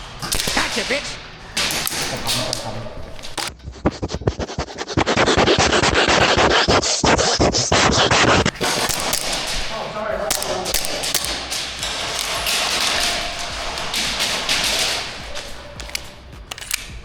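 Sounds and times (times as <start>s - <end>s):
patter of clicks: 0.0s - 3.5s, 8.6s - 17.0s
rubbing and scraping on microphone: 1.6s - 10.4s.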